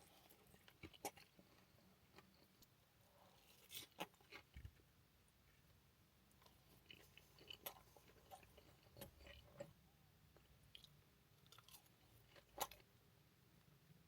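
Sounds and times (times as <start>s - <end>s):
person chewing chips: 0.0s - 2.6s, 6.4s - 9.8s, 10.7s - 12.9s.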